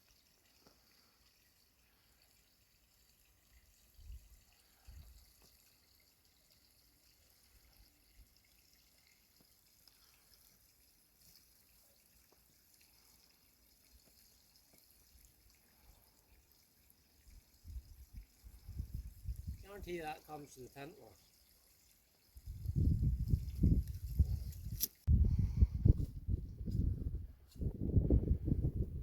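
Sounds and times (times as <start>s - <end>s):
faint steady hiss: 0.0s - 22.3s.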